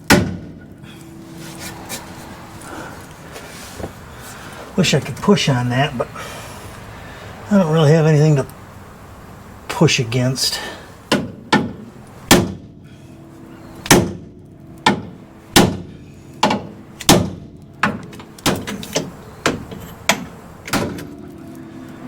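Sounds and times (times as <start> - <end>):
hammer striking steel: 13.6 - 20.4.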